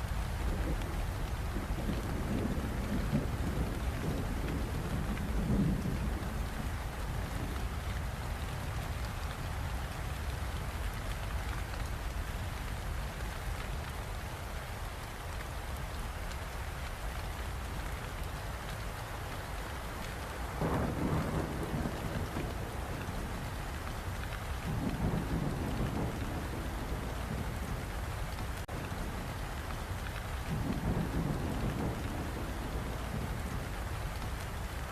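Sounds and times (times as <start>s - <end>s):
steady rain falling: 0.0s - 34.9s
thunder rolling: 20.6s - 23.4s.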